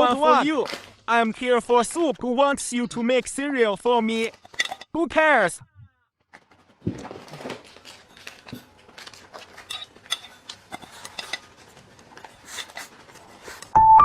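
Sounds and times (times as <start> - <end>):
cutlery clinking against dishes: 9.4 - 11.6.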